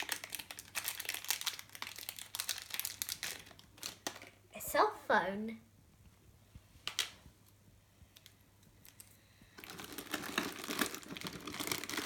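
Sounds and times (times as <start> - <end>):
plastic packaging crinkling: 0.0 - 4.4, 8.2 - 12.0.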